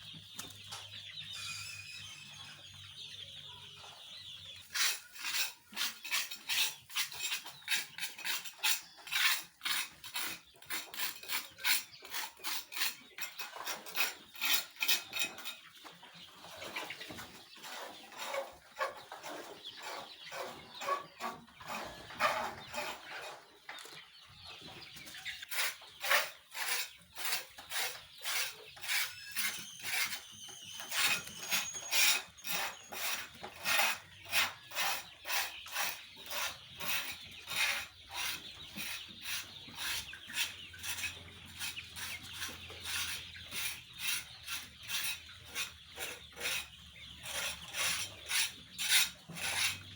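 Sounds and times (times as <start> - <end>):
chickens clucking: 0.0 - 49.9
high chicken calls: 1.2 - 2.8, 25.4 - 34.0.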